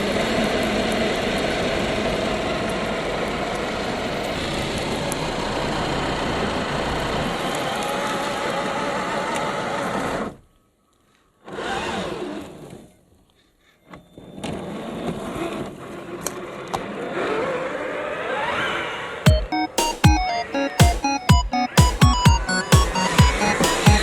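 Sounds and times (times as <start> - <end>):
electronic music with hard beat: 19.3 - 24.0.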